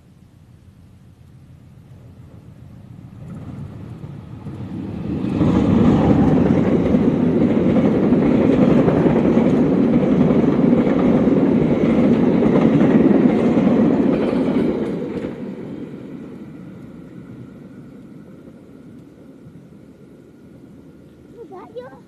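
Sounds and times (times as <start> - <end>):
passenger train passing: 1.4 - 22.0
wheels rumbling on rails: 1.4 - 22.0.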